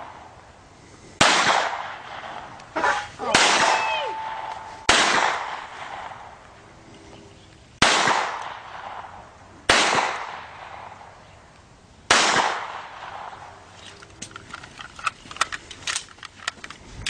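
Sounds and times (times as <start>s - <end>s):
pistol shots echoing: 3.2s - 6.1s.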